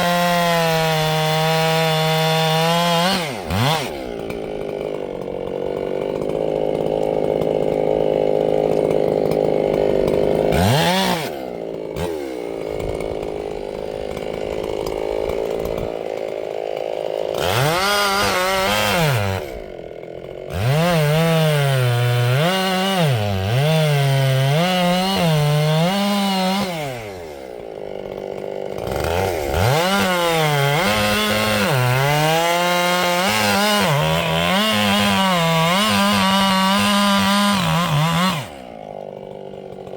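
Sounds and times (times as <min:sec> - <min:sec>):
chainsaw running hard: 0:00.0 - 0:39.9.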